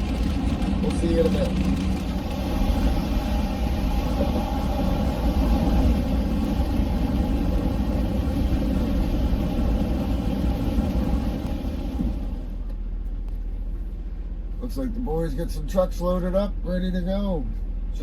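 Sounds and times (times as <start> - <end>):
vehicle engine and road noise: 0.0 - 18.0
rain hiss: 2.0 - 12.6.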